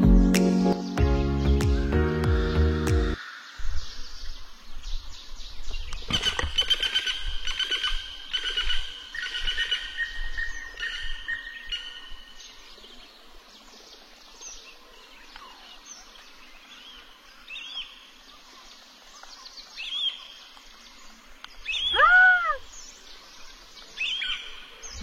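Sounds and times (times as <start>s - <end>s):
small birds chirping: 0.6s - 25.0s
bird call rising and falling: 21.6s - 22.8s.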